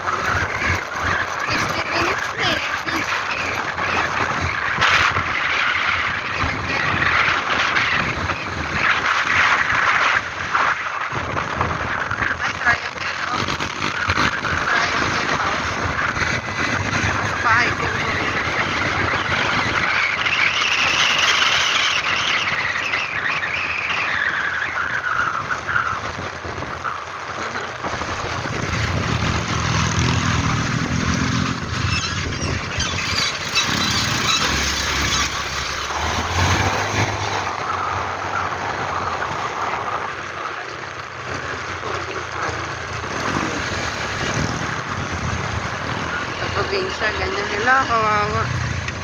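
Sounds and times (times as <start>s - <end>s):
vehicle engine and road noise: 0.0s - 49.0s
high squeal sliding down: 29.1s - 40.0s.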